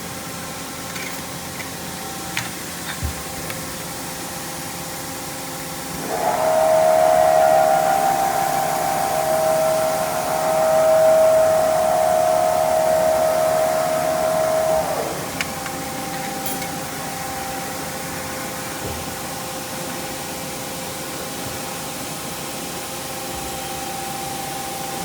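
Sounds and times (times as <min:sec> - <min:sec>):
machine whining over hiss: 0:05.6 - 0:18.6.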